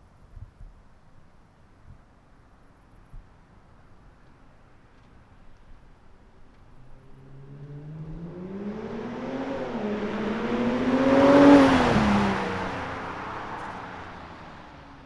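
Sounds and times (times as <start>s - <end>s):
car accelerating past: 6.8s - 14.9s.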